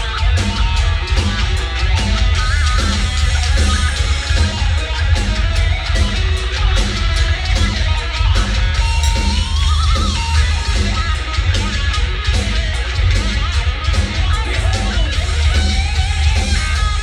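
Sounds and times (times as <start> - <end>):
distorted electric guitars: 0.0 - 17.0
driving drum beat: 0.0 - 17.0.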